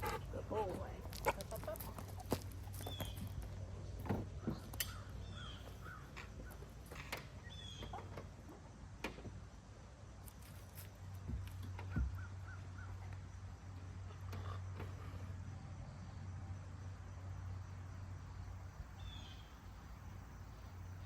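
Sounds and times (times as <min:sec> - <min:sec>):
bird calling: 0:00.0 - 0:03.4, 0:04.4 - 0:08.2.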